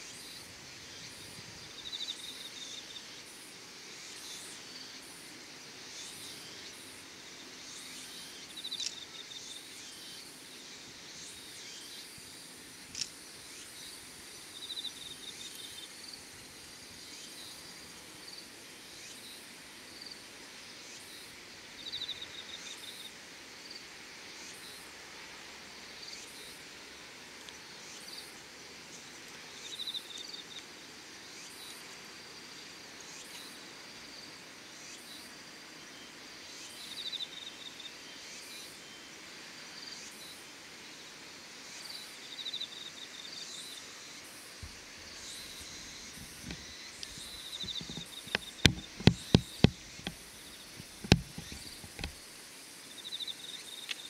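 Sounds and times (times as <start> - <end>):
faint insect chorus: 0.0 - 54.0
short pulsed insect trill: 41.7 - 54.0
sharp click: 46.2 - 50.2.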